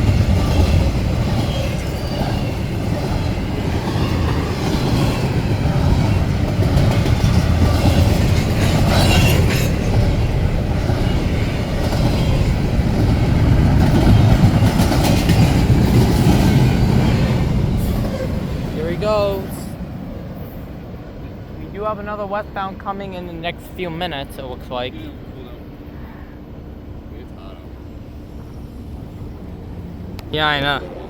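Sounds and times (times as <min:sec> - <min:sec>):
wheels clacking over rail joints: 0:00.0 - 0:19.4
freight train cars rumbling past: 0:00.0 - 0:31.0.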